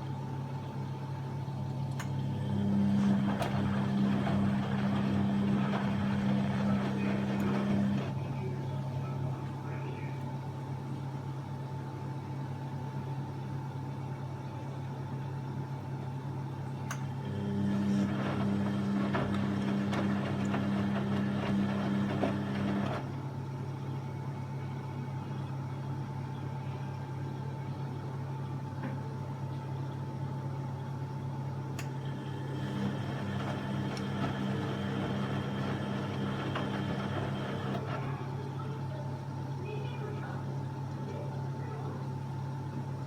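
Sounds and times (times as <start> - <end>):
washing machine motor hum: 0.0 - 43.0
whining motor: 2.4 - 8.2, 17.3 - 23.1, 32.1 - 38.2.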